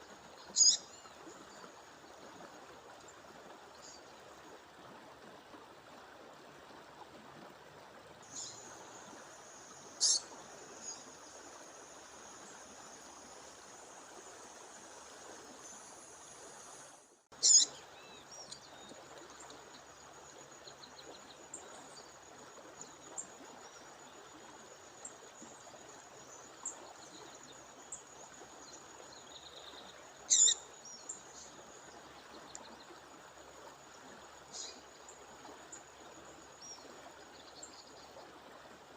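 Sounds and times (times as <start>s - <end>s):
high-pitched bird calls: 0.6s - 0.8s, 10.0s - 10.2s, 17.4s - 17.7s, 30.3s - 30.6s.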